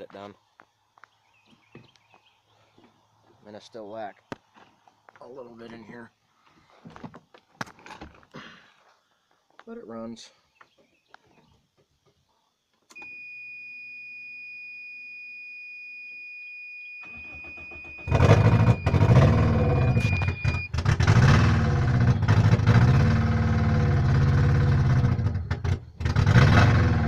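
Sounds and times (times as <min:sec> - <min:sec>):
high electronic warning tone: 0:13.0 - 0:20.7
car engine cranking and starting: 0:17.0 - 0:27.0
car engine revving: 0:18.1 - 0:27.0.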